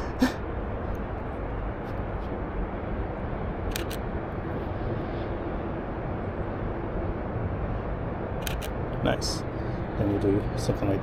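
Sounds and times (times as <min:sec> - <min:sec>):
low outdoor background noise: 0:00.0 - 0:11.0
camera shutter clicks: 0:03.7 - 0:04.0, 0:08.4 - 0:08.8.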